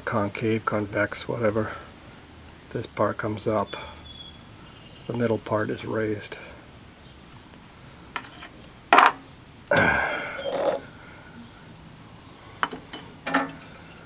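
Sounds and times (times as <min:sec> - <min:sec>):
metal parts clanking: 0:08.2 - 0:09.2.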